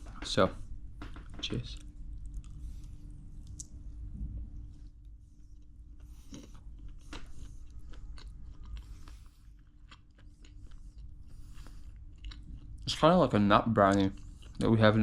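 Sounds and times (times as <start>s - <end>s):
person chewing and crunching: 5.4s - 13.0s, 13.7s - 14.9s.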